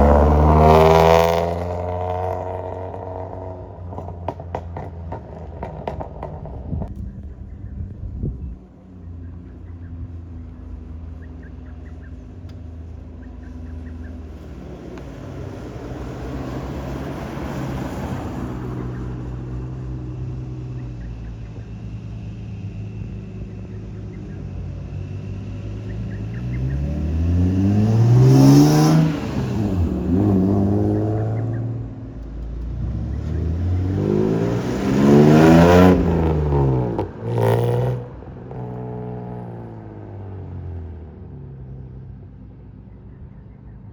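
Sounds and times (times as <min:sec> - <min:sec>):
car engine driving past: 0:10.2 - 0:42.2.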